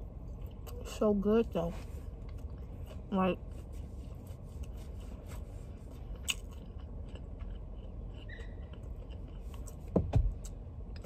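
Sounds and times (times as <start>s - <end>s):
person chewing food: 2.0s - 11.0s
dull thumps: 9.8s - 10.4s.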